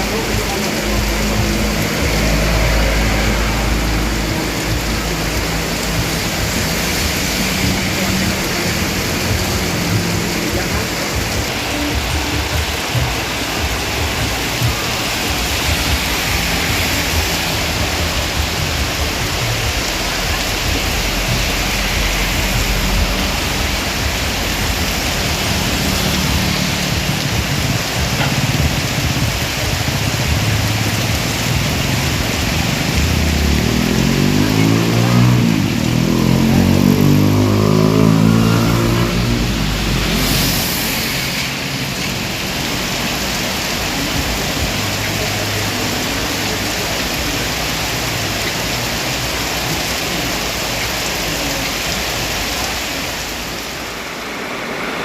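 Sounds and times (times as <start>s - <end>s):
heavy rain pouring: 0.0s - 55.0s
vehicle engine passing by: 0.7s - 11.3s, 30.6s - 43.0s.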